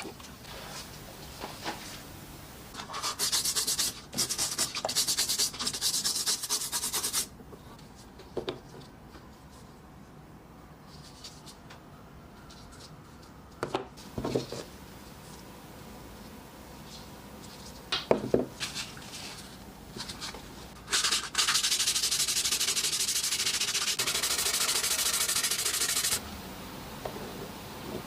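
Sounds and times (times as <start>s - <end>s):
rapid scrubbing strokes: 20.9s - 26.2s.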